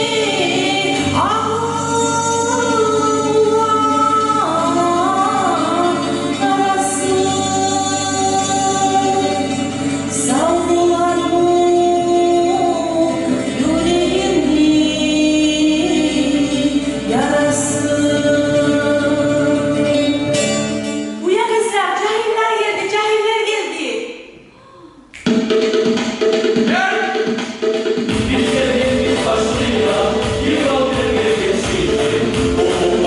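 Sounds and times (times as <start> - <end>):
group singing in long notes: 0.0 - 2.0, 12.8 - 19.8, 28.1 - 33.0.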